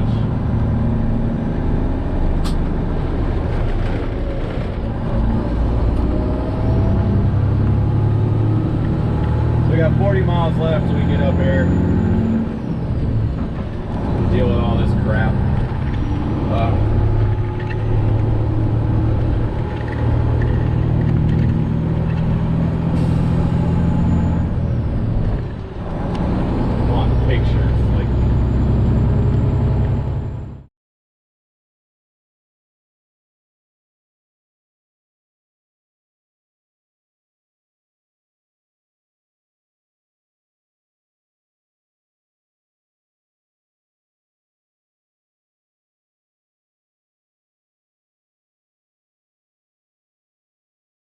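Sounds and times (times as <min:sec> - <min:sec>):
diesel truck engine running: 0:00.0 - 0:30.7
sharp click: 0:02.4 - 0:02.6.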